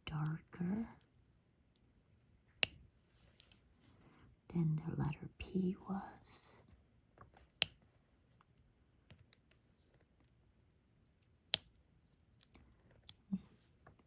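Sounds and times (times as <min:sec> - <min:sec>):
small plastic clicks: 0:02.6 - 0:03.9, 0:11.2 - 0:14.0.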